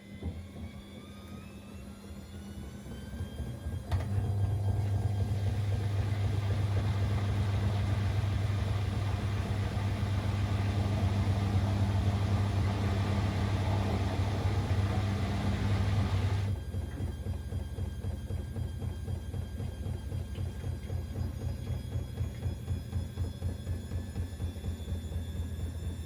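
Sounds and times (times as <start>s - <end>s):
washing machine low hum: 3.0s - 26.0s
washing machine rushing noise: 3.6s - 16.6s.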